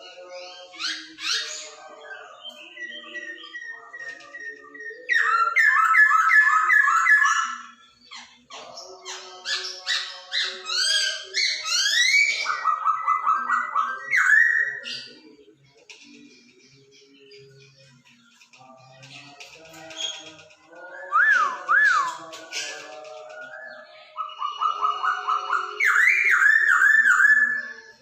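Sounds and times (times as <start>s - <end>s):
bird singing whistled phrases: 19.9s - 22.8s, 23.4s - 28.0s.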